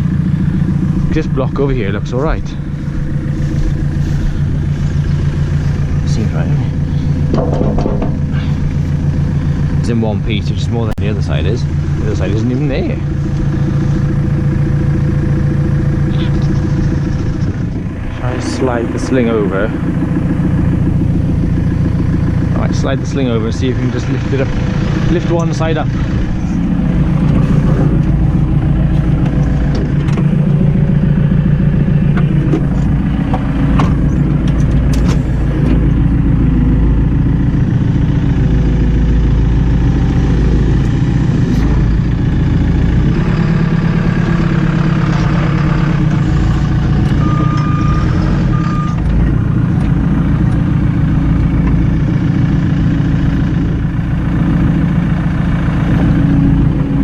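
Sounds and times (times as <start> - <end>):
diesel tractor engine running: 0.0 - 57.0
sharp knocks: 7.2 - 8.5.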